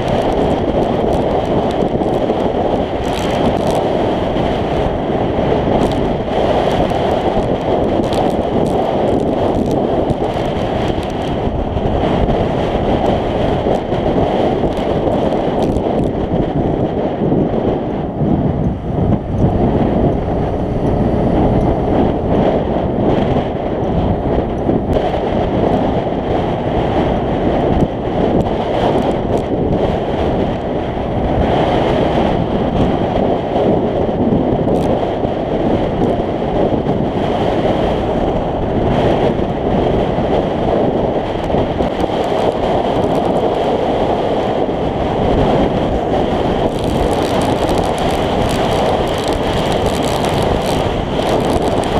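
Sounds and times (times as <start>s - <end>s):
wind rushing over microphone: 0.0s - 51.9s
scooter engine running: 18.6s - 34.0s, 46.0s - 51.9s.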